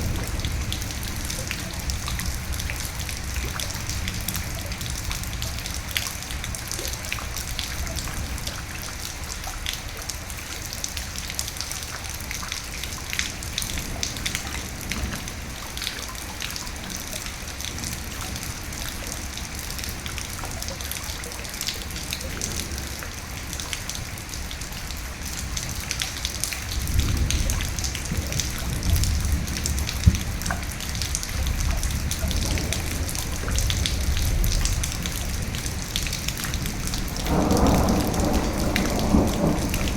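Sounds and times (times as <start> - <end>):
thunder rumbling: 0.0 - 6.8, 21.8 - 39.9
rain pattering: 0.0 - 39.9.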